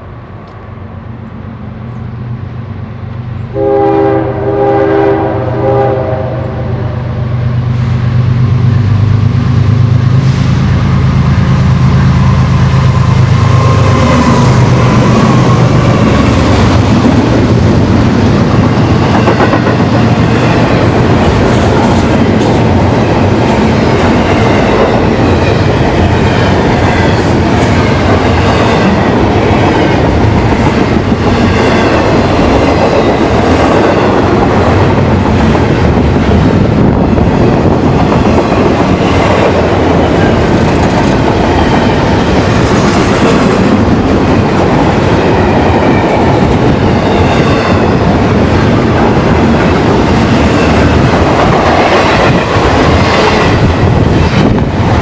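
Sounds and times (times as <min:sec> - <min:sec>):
train wheels rushing on rails: 0:00.0 - 0:55.0
clickety-clack over rail joints: 0:12.7 - 0:55.0.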